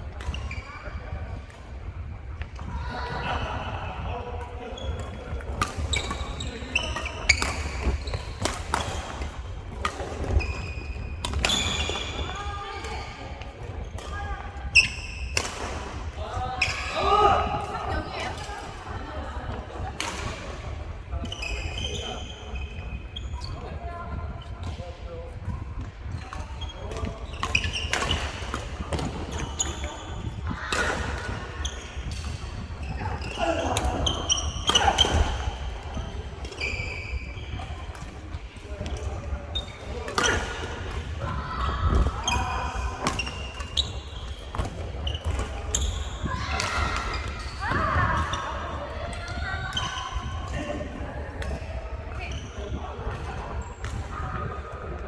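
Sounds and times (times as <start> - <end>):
shoes squeaking on floor: 5.9 - 8.5, 10.3 - 12.4, 26.6 - 28.2, 31.6 - 37.8, 41.6 - 48.3.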